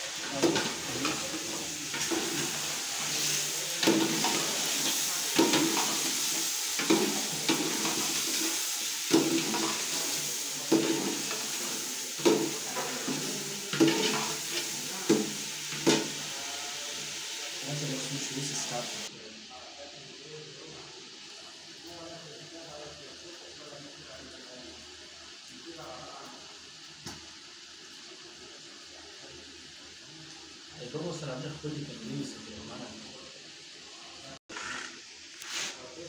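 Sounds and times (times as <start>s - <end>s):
chicken sizzling in pot: 0.0s - 36.0s.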